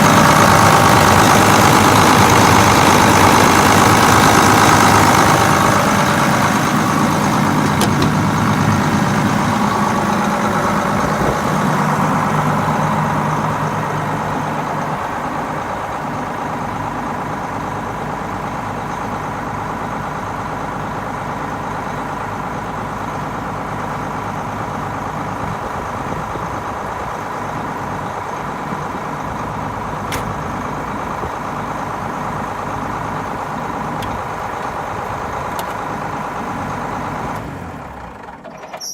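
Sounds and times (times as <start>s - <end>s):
tractor diesel engine idling: 0.0s - 38.9s.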